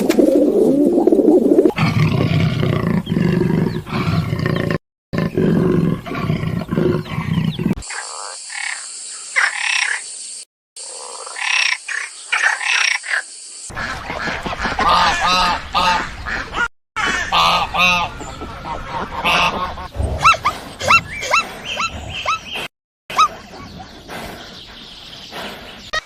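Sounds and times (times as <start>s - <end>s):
waterfowl honking: 13.7s - 21.4s.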